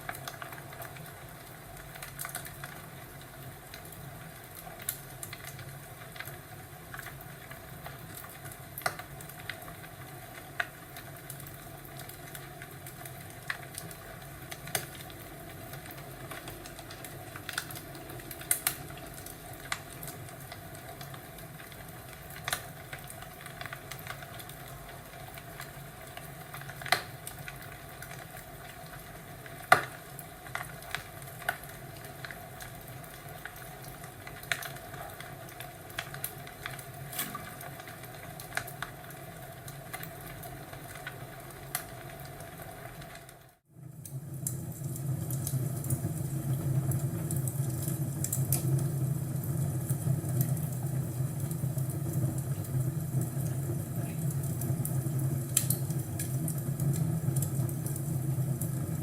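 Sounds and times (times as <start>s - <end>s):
low rumble and hiss of fire: 0.0s - 59.0s
wood fire crackling: 0.0s - 59.0s
sharp pops of fire: 29.6s - 30.0s.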